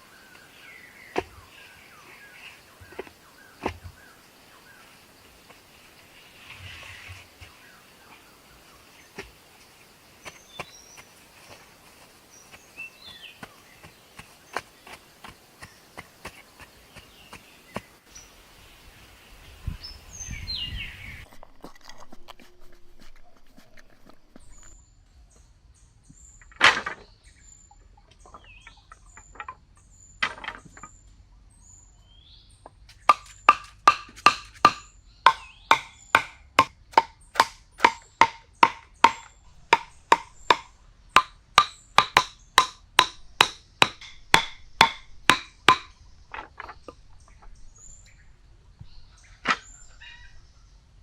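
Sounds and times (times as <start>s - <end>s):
sharp ringing knocks: 33.1s - 46.0s.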